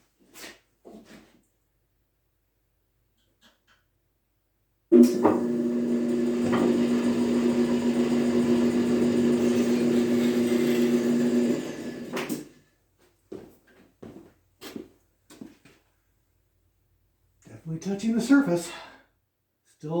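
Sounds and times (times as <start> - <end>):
electric motor humming: 5.0 - 12.4
planer cutter digging into metal: 5.0 - 12.5.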